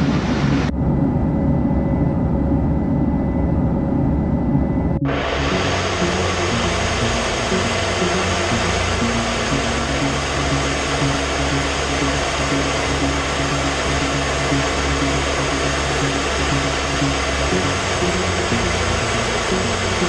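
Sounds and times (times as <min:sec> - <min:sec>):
jet aircraft rushing noise: 0:00.0 - 0:00.8, 0:04.6 - 0:20.0
music: 0:05.0 - 0:20.0.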